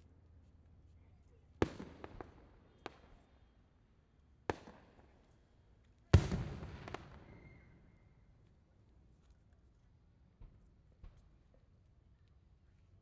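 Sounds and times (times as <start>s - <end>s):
small firework crack: 1.6s - 3.3s.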